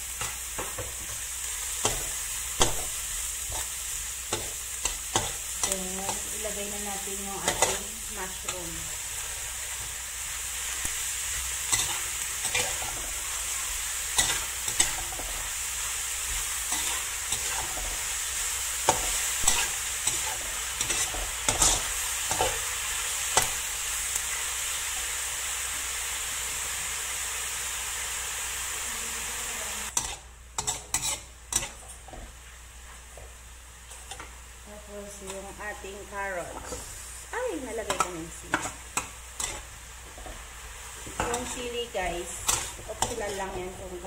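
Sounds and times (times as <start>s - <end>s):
vegetables sizzling in a wok: 0.0s - 44.0s
metal spatula scraping a pan: 11.7s - 13.4s, 16.3s - 18.1s, 18.8s - 22.6s, 29.9s - 32.2s, 37.9s - 40.4s, 41.0s - 44.0s.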